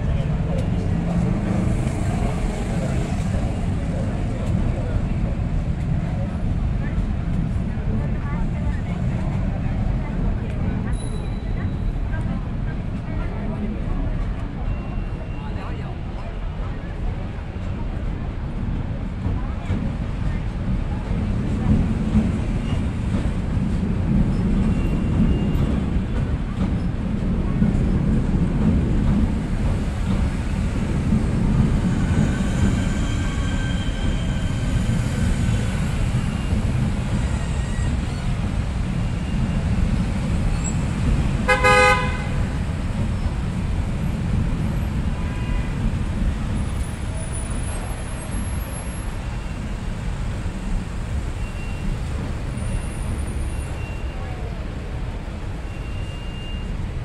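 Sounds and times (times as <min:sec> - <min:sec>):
train rumbling over bridge: 0:00.0 - 0:57.0
short train horn toot: 0:41.4 - 0:42.5.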